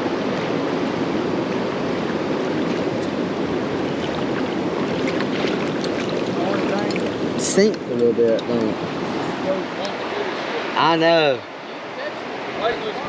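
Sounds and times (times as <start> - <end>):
creek water rushing through rapids: 0.0 - 13.0.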